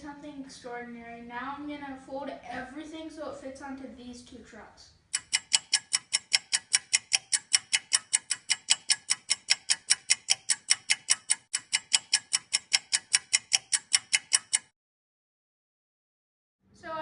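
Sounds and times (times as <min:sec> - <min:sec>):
rapid even ticking: 0:05.1 - 0:14.7.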